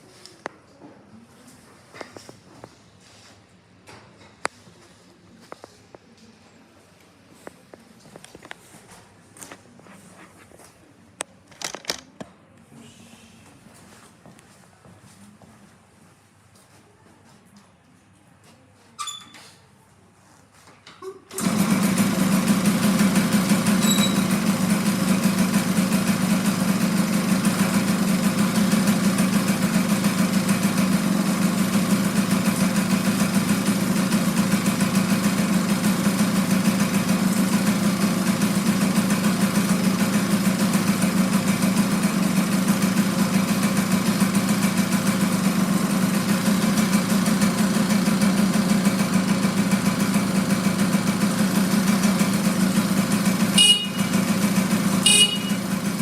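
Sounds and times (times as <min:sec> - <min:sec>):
two-stroke engine starting and idling: 0:21.0 - 0:56.0.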